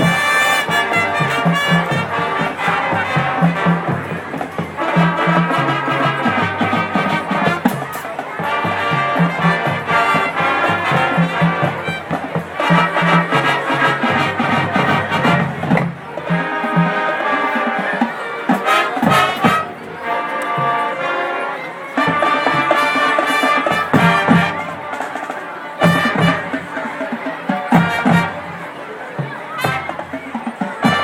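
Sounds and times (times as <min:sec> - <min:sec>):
sharp drum strokes: 0:00.0 - 0:17.0
brass section playing tune: 0:00.0 - 0:28.8, 0:29.4 - 0:31.0
marching band playing jazz: 0:00.0 - 0:31.0.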